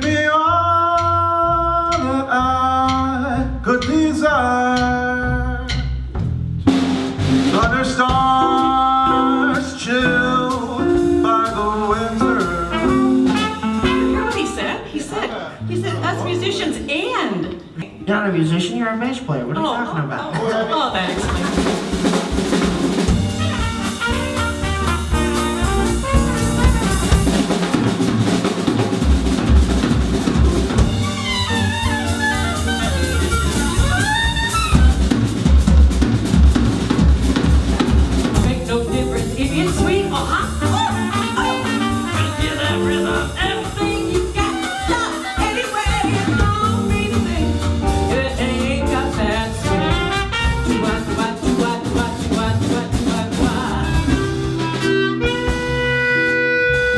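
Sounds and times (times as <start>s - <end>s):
swing jazz band playing: 0.0s - 56.9s
horn fast run: 21.7s - 35.4s, 40.2s - 42.9s, 49.6s - 51.4s.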